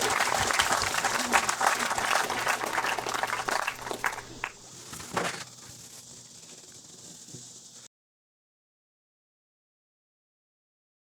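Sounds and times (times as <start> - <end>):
audience applause: 0.0 - 5.4.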